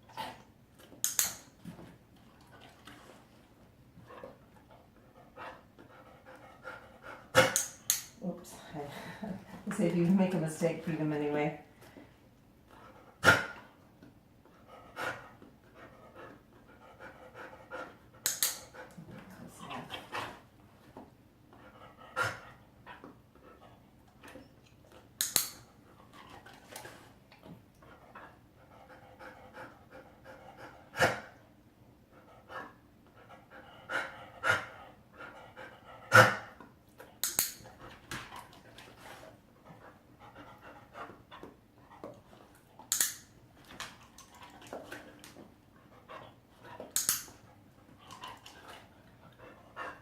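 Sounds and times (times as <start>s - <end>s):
training clicker clicks: 1.0s - 1.5s, 42.9s - 43.2s, 47.0s - 47.3s
dog panting: 2.2s - 7.6s, 14.5s - 25.1s, 25.8s - 31.4s, 32.0s - 42.9s, 43.6s - 50.0s.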